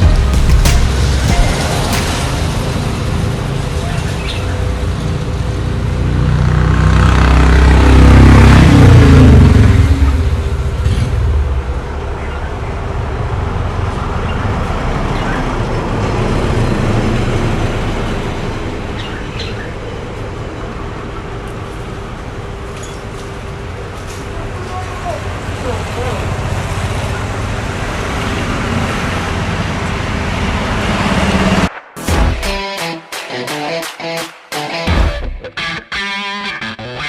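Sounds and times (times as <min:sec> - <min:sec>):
vehicle engine passing: 0:00.0 - 0:19.0
traffic noise: 0:00.0 - 0:32.0.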